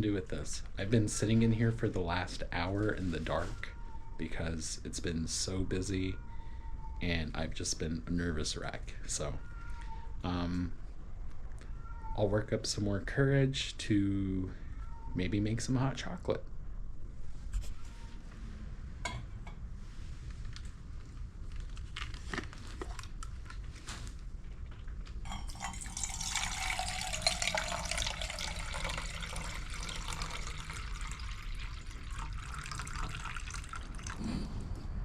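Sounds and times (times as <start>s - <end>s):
water pouring into a pot: 25.3s - 34.2s.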